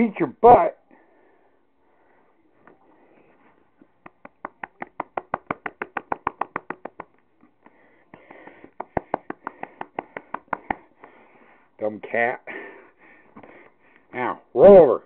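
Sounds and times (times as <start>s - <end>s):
person making sharp clicks: 4.0s - 7.2s, 8.1s - 11.2s.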